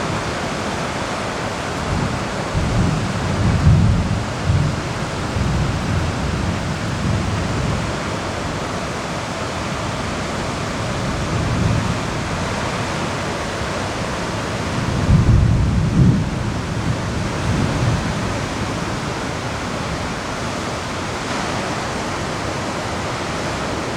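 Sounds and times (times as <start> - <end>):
heavy rain hiss: 0.0 - 23.9
thunder rumbling: 1.8 - 8.8, 9.9 - 20.2.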